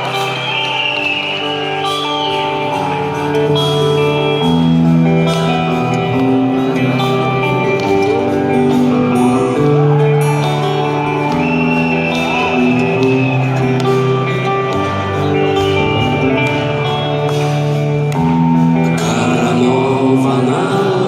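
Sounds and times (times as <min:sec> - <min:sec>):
live rock band instrumental: 0:00.0 - 0:21.0.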